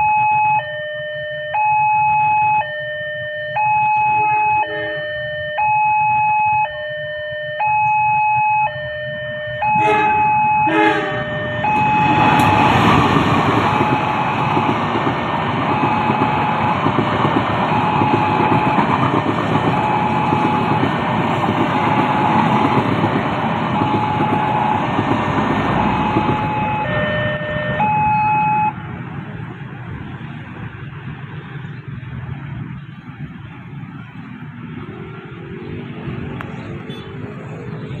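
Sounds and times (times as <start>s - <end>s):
level crossing warning tone: 0.0s - 28.8s
traffic noise: 0.0s - 38.0s
passing train rumble: 3.2s - 5.6s, 8.7s - 38.0s.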